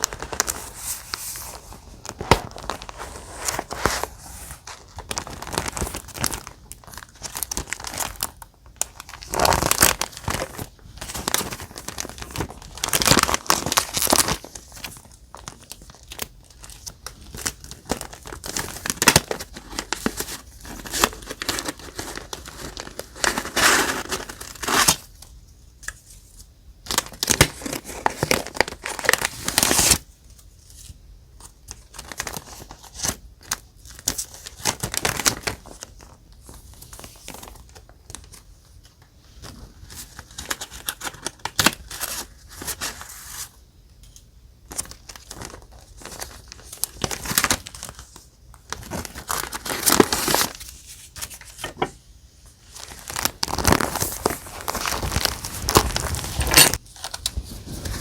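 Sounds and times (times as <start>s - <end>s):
paper rustling: 0.0s - 25.0s, 44.7s - 58.0s.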